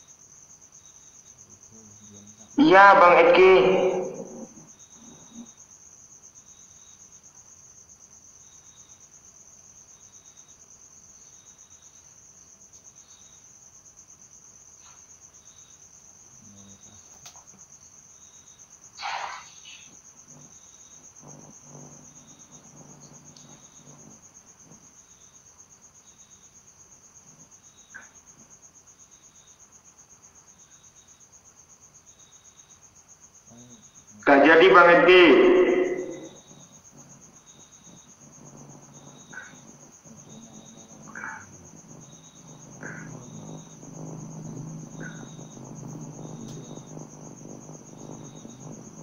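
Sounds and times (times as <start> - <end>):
insects chirring: 0.0 - 49.0
brief loud noise: 19.0 - 19.8.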